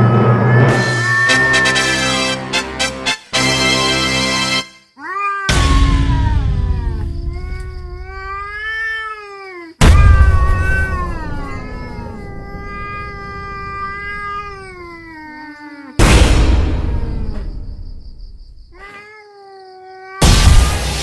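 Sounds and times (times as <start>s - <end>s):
cat meowing: 0.0s - 2.1s, 5.0s - 16.0s, 18.7s - 20.8s.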